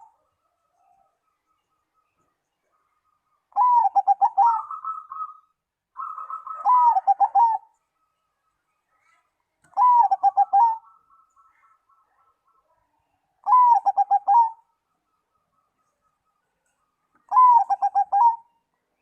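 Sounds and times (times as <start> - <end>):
dove cooing: 0.0 - 1.1, 3.5 - 7.8, 9.7 - 12.1, 13.4 - 14.8, 17.2 - 18.6.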